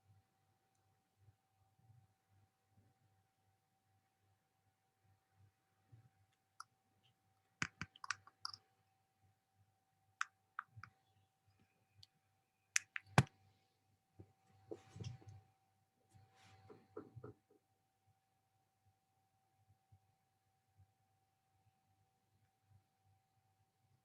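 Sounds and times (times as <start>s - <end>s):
sharp clicks and taps: 7.6s - 8.6s, 12.8s - 13.3s
faint steady tone: 8.6s - 24.0s.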